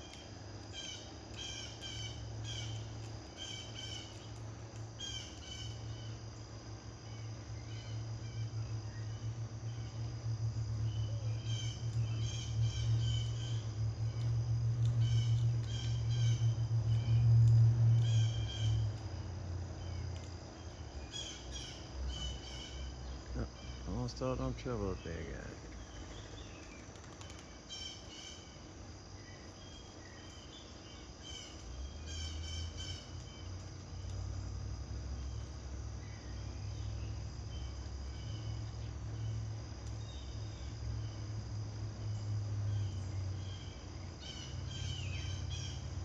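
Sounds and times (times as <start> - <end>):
songbirds chirping: 0.0 - 46.0
high insect buzz: 0.1 - 46.0
low hum: 6.8 - 21.1.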